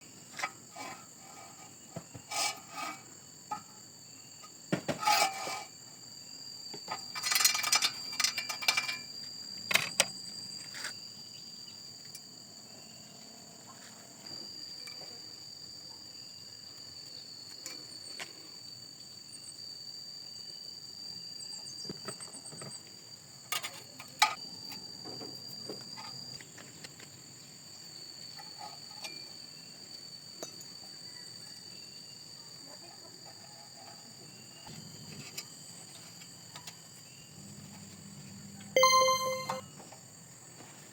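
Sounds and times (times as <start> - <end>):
high-pitched whine: 38.8 - 39.7.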